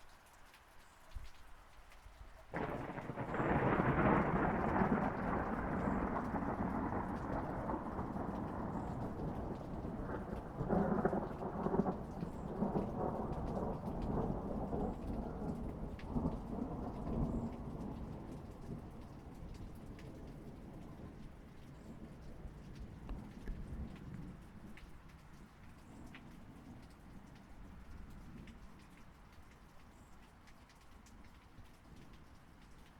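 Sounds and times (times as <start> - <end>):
steady rain: 0.0 - 32.9
thunder rumbling: 2.5 - 24.8.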